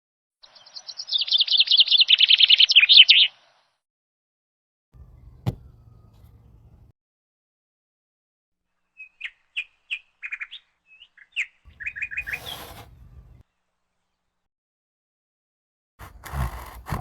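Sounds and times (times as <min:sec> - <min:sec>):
small bird chirping: 0:00.4 - 0:03.7, 0:08.9 - 0:13.4.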